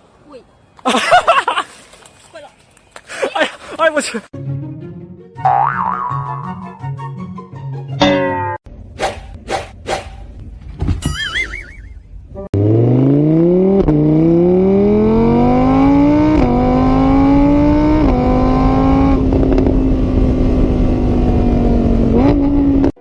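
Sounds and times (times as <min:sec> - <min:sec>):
car engine accelerating: 0:12.5 - 0:23.0.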